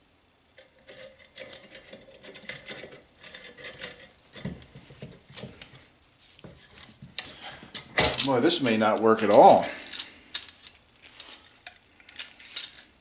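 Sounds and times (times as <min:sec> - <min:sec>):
metal tool clicking and scraping: 0:07.2 - 0:12.9.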